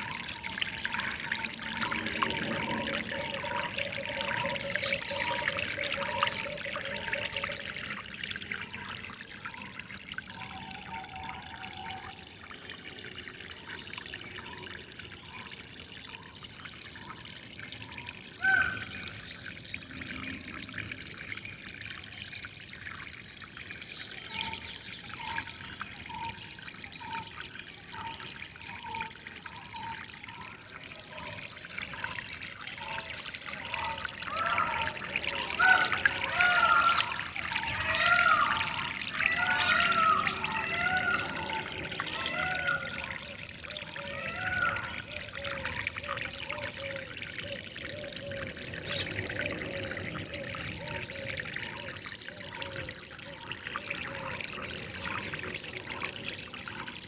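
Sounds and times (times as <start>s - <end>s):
water trickling and pouring: 0.0s - 57.0s
birds calling: 32.8s - 45.8s.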